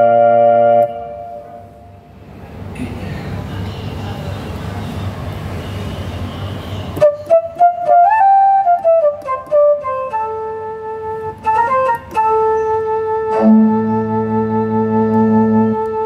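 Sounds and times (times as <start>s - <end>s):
keyboard flute-like notes: 0.0s - 2.1s, 6.9s - 16.0s.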